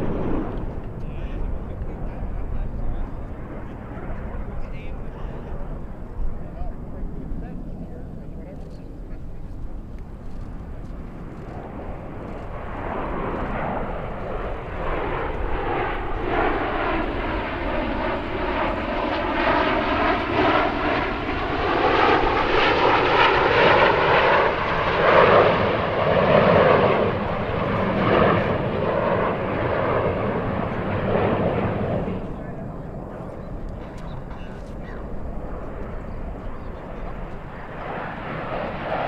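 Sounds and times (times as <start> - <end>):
jets flying past: 0.0 - 39.0.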